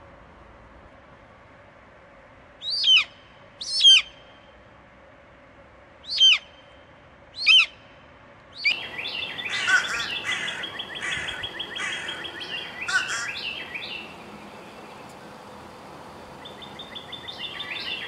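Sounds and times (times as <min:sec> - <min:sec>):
hawk shrill calls: 0:06.1 - 0:06.4, 0:08.6 - 0:14.1
chatter of many bird calls: 0:08.6 - 0:18.0.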